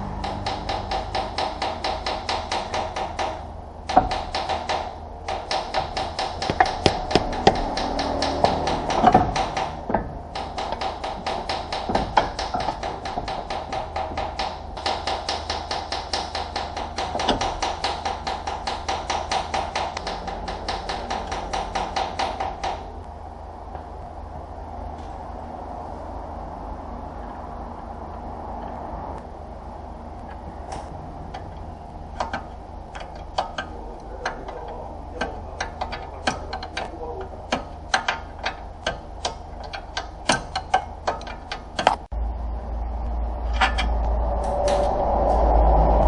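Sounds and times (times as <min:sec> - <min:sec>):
rapid even tapping: 0:00.1 - 0:23.0, 0:31.3 - 0:42.2
louder single knocks: 0:00.2 - 0:22.9.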